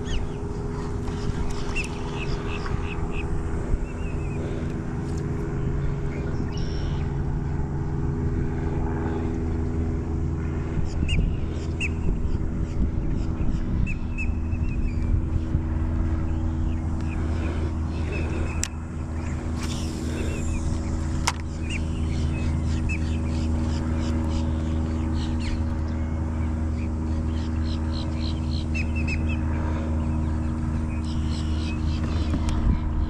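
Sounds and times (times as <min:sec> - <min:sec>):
steady mechanical hum: 0:00.0 - 0:33.0.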